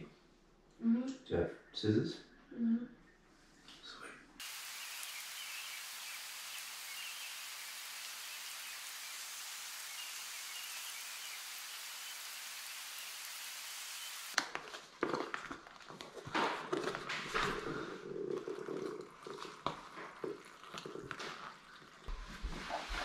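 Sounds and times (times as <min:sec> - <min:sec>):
light rain hissing: 0:04.4 - 0:14.4.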